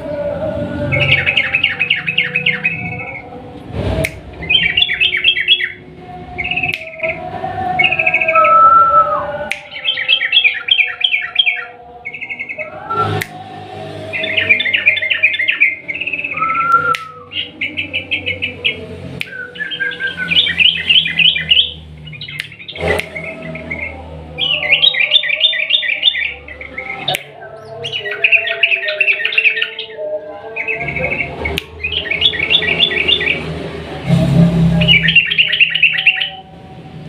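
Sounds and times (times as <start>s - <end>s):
bulbul chattering song: 0.0s - 37.0s
sharp clicks: 4.0s - 4.3s, 9.4s - 9.8s, 22.2s - 23.3s.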